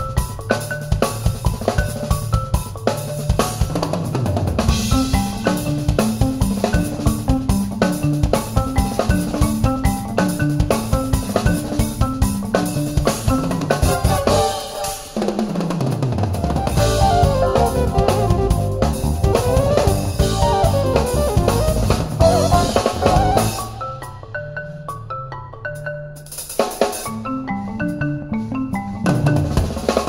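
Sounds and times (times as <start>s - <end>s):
drum kit: 0.0s - 24.2s, 26.2s - 27.6s, 28.5s - 30.0s
higher melody line: 16.5s - 24.0s
electric bass riff: 16.6s - 23.8s.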